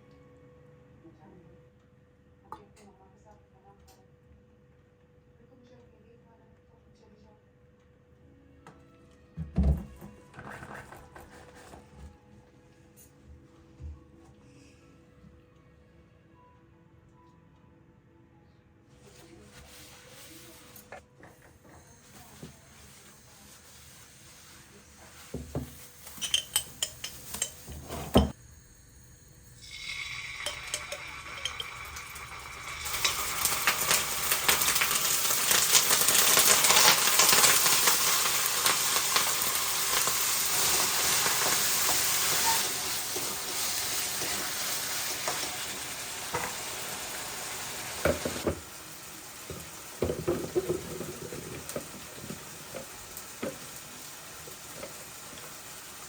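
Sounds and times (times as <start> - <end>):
food sizzling in a pan: 21.9 - 56.0
utensil clinking on cookware: 25.4 - 28.4, 29.6 - 38.0.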